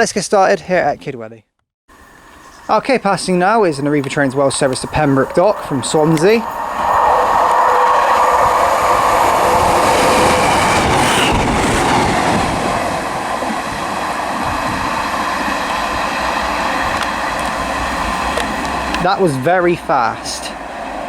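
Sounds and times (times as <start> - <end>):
train wheels rushing on rails: 2.0 - 21.0.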